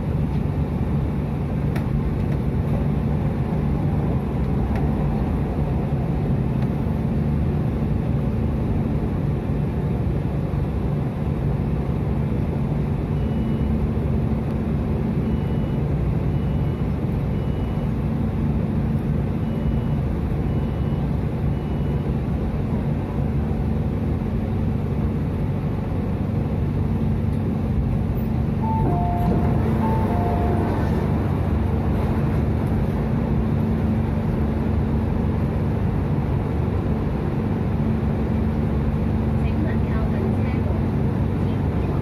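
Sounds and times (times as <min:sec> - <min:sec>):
train equipment hum and rumble: 0:00.0 - 0:42.0
two-note chime: 0:28.6 - 0:31.0.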